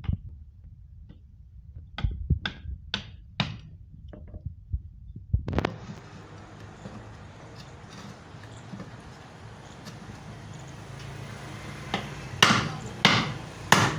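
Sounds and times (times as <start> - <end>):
hammer knocking on wood: 6.4 - 13.9.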